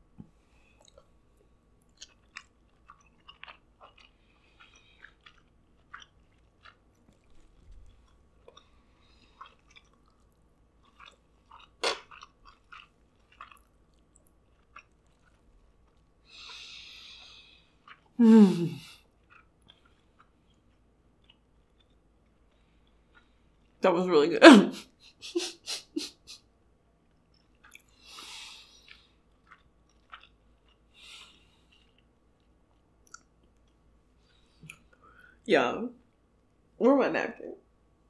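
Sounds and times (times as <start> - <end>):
wet chewing: 0.6 - 18.2, 18.8 - 23.8, 27.1 - 35.3
person humming mmm: 18.2 - 18.9
soft mouth clicks: 33.1 - 33.3, 34.6 - 35.2.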